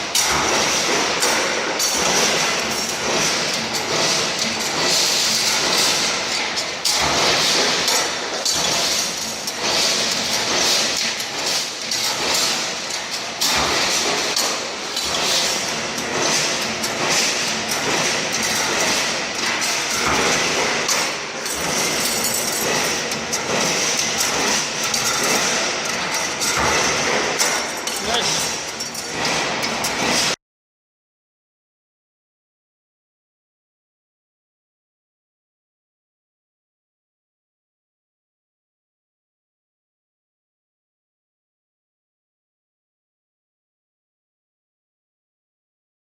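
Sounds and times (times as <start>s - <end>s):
continuous mechanical machine noise: 0.0s - 30.4s
metallic knocks and clanks: 0.0s - 30.4s.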